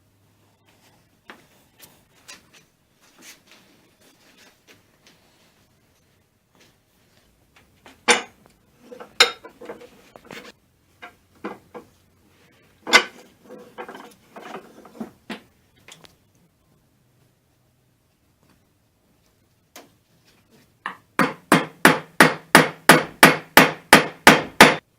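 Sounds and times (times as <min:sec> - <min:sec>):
metal tools clinking and knocking: 0:08.1 - 0:10.0, 0:12.9 - 0:14.7.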